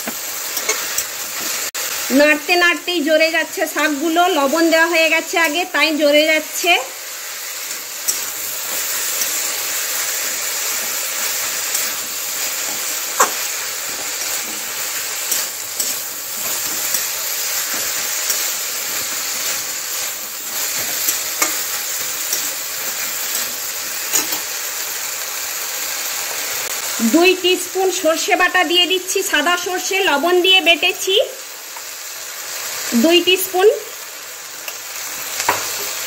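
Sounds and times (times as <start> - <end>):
vegetables sizzling in oil: 0.0 - 36.0.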